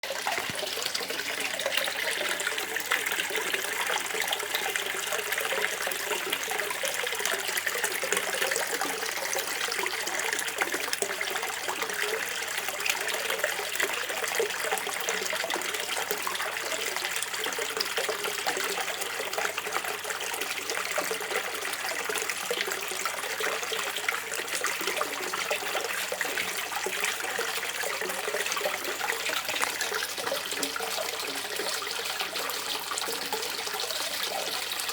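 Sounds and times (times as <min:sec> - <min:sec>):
river water gurgling: 0:22.8 - 0:34.9.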